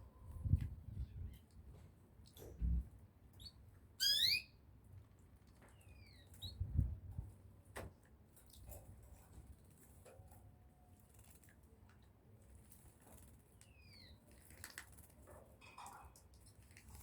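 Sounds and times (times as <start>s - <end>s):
bird chirp: 3.4s - 4.6s.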